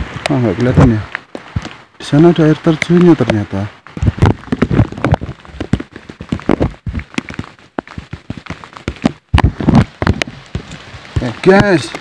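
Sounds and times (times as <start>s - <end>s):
footsteps on muddy trail: 0.0s - 12.0s.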